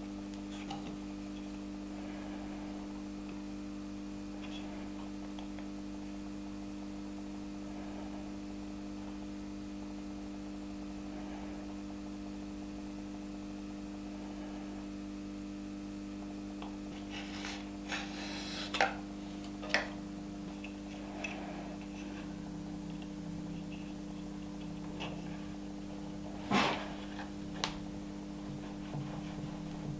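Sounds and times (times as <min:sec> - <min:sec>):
low electrical hum: 0:00.0 - 0:29.9
handling knocks and rubbing: 0:20.4 - 0:29.9.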